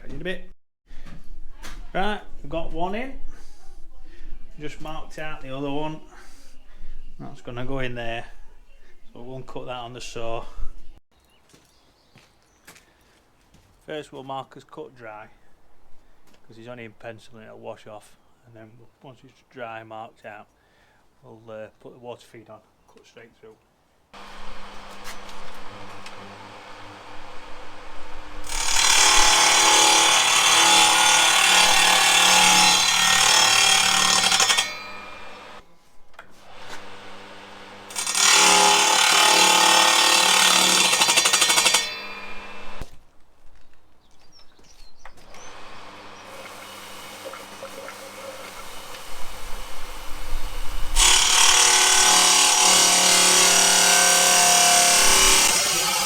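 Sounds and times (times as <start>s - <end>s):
electric saw cutting stone: 24.2s - 35.6s, 36.4s - 42.8s, 45.3s - 56.0s
saw motor running: 24.2s - 35.6s, 36.5s - 42.8s, 45.3s - 56.0s.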